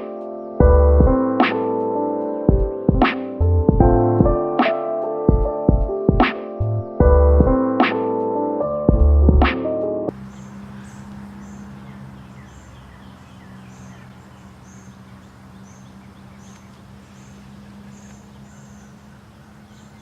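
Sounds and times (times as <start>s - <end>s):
background music: 0.0s - 10.1s.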